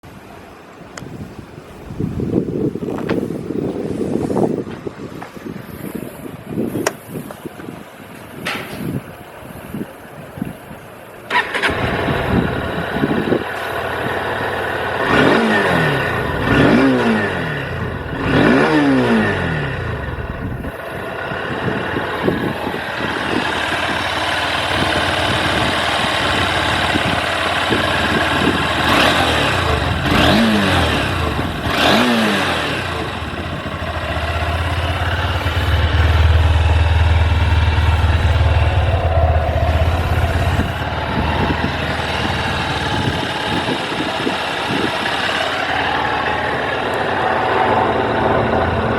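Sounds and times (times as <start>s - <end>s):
motorcycle engine idling and revving: 11.3s - 48.9s.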